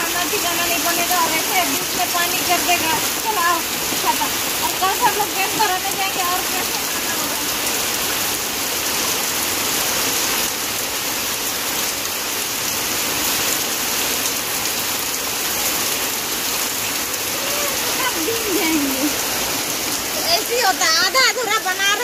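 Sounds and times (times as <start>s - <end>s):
heavy rain on wet ground: 0.0s - 22.0s.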